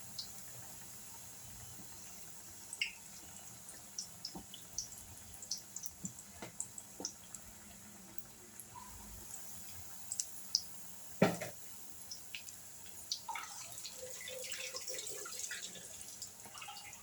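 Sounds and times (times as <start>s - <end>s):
food deep-frying in hot oil: 0.0s - 17.0s
sharp knock: 11.2s - 11.5s.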